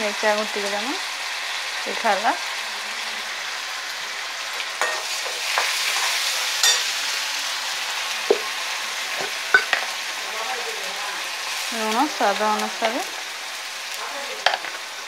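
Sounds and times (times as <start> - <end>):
spice paste sizzling in hot oil: 0.0 - 15.0
steel spoon scraping a wok: 4.8 - 7.1.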